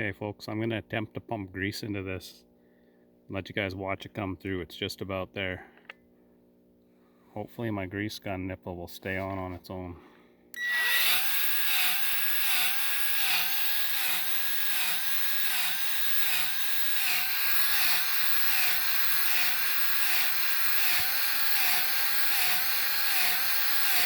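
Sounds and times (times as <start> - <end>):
grease gun motor pulsing: 10.6 - 24.0.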